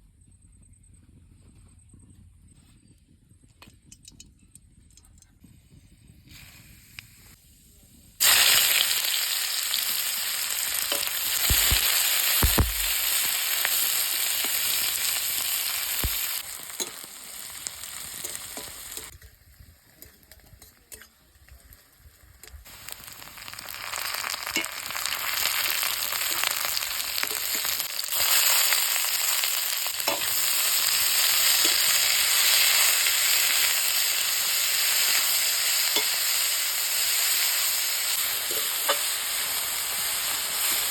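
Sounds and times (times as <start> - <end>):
food sizzling in a pan: 8.2 - 19.2, 22.4 - 40.9.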